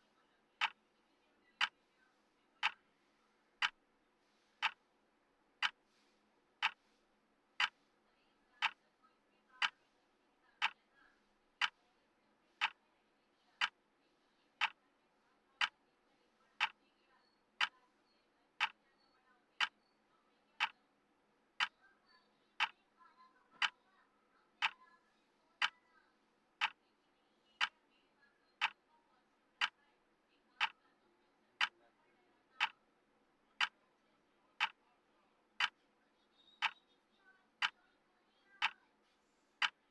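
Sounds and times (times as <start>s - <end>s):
clock ticking: 2.6s - 2.8s, 3.6s - 3.8s, 4.6s - 4.8s, 5.6s - 5.8s, 6.6s - 6.8s, 7.6s - 7.8s, 8.6s - 8.8s, 9.6s - 9.8s, 10.6s - 10.8s, 11.6s - 11.8s, 12.6s - 12.8s, 13.6s - 13.8s, 14.6s - 14.8s, 15.6s - 15.8s, 16.6s - 16.8s, 17.6s - 17.8s, 18.6s - 18.8s, 19.6s - 19.8s, 20.6s - 20.8s, 21.6s - 21.8s, 22.6s - 22.8s, 23.6s - 23.8s, 24.6s - 24.9s, 25.6s - 25.8s, 26.6s - 26.8s, 28.6s - 28.9s, 29.6s - 29.8s, 30.6s - 30.8s, 31.6s - 31.8s, 32.6s - 32.8s, 33.6s - 33.8s, 34.6s - 34.8s, 35.6s - 35.8s, 36.6s - 36.8s, 37.6s - 37.8s, 38.5s - 38.8s, 39.6s - 39.9s.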